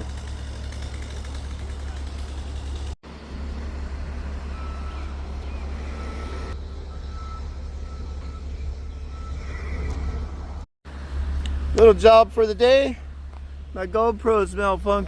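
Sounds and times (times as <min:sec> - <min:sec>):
large engine running: 0:00.0 - 0:15.0
faint reversing beeper: 0:04.4 - 0:10.6.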